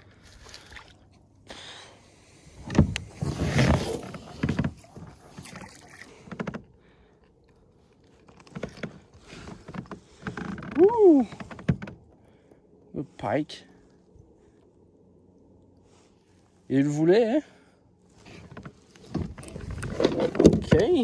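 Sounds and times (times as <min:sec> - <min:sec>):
knocks and thumps on a kayak: 0:02.6 - 0:06.7, 0:08.4 - 0:12.1, 0:18.2 - 0:21.0.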